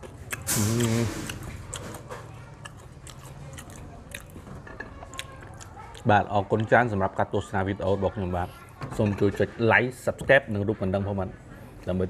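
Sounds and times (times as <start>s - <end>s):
person chewing crispy food: 0.0s - 6.7s.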